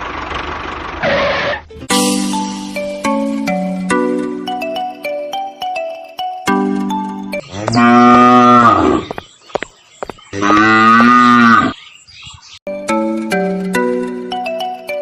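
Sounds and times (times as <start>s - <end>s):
light chiming music: 1.7s - 8.2s, 12.7s - 15.0s
cow mooing: 7.4s - 9.1s, 10.4s - 11.8s.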